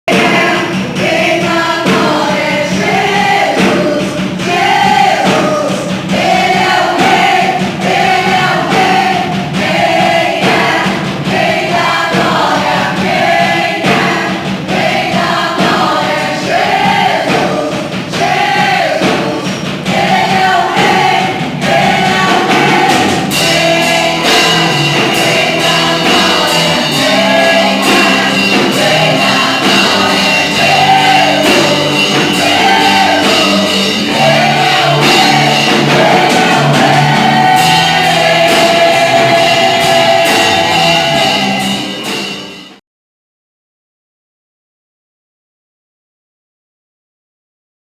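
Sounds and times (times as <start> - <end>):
gospel-style group singing: 0.1 - 42.8
instrumental accompaniment: 0.1 - 42.8
steady high tone: 22.6 - 42.8.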